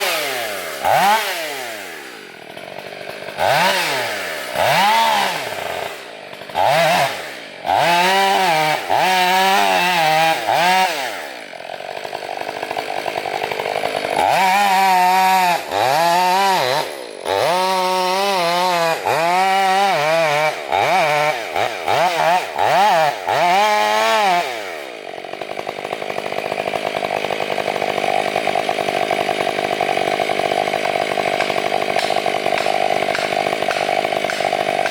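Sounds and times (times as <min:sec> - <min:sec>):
chainsaw engine revving: 0:00.0 - 0:34.9.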